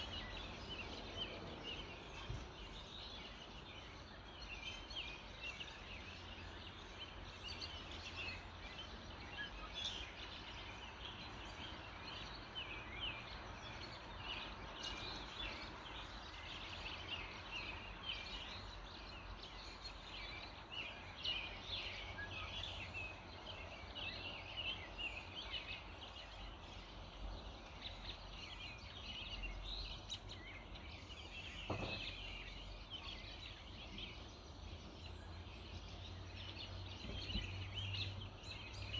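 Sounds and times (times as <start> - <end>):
small birds chirping and singing: 0.0 - 38.9
brief knock: 31.7 - 32.2.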